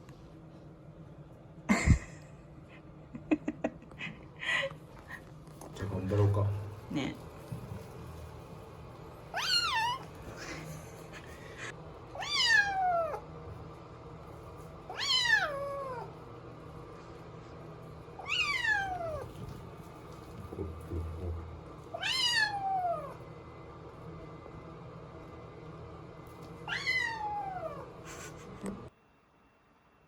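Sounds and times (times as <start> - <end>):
kitten meowing: 9.3 - 10.1, 12.2 - 13.2, 14.9 - 16.1, 18.2 - 19.3, 21.9 - 23.2, 26.7 - 27.9.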